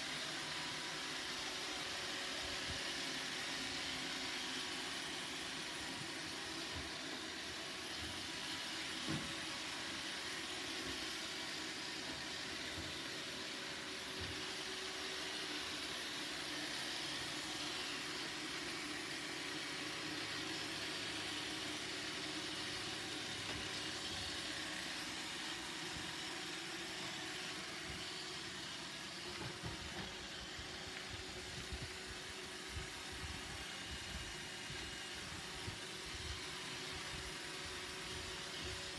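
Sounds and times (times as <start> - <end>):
robot vacuum whirring: 0.0 - 38.9.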